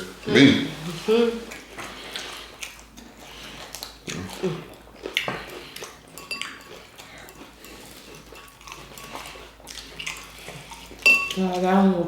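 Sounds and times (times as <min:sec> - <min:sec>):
cutlery clinking against dishes: 0:06.1 - 0:10.4, 0:11.0 - 0:11.5.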